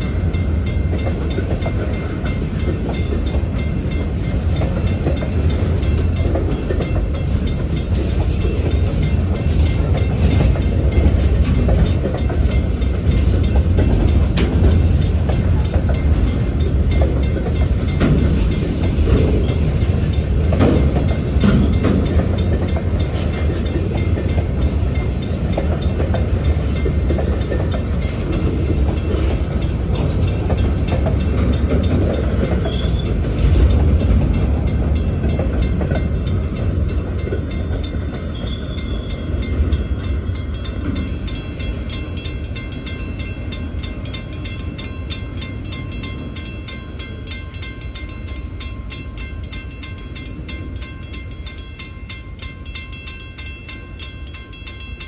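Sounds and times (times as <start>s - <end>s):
train wheels rumbling on rail: 0.0s - 55.0s
high wheel squeals: 32.6s - 33.2s.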